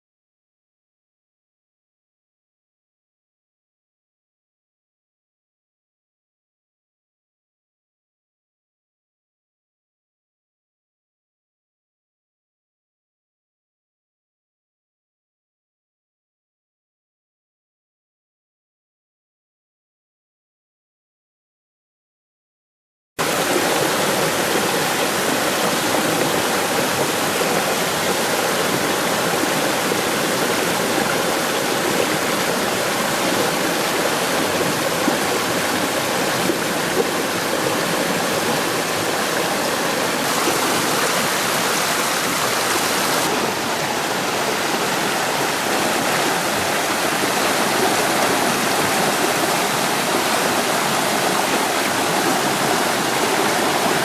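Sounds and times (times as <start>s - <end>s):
waterfall roaring: 23.2s - 54.0s.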